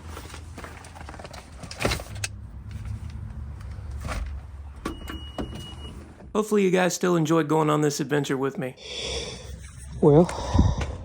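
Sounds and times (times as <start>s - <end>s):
car engine humming: 1.9s - 6.3s.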